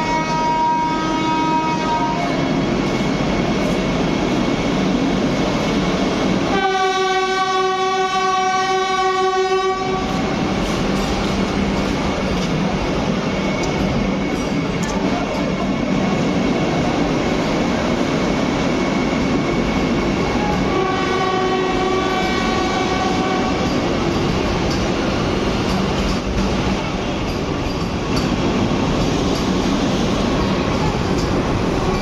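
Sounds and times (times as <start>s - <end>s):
train horn: 0.0s - 2.6s, 6.5s - 10.3s, 20.3s - 23.8s
train running rumble: 0.0s - 32.0s.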